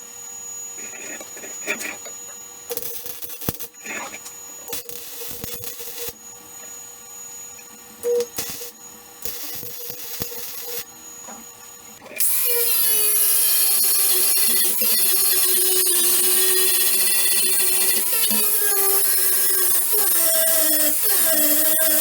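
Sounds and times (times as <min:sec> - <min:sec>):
high-pitched power tool on steel: 0:02.8 - 0:06.2, 0:08.0 - 0:22.0.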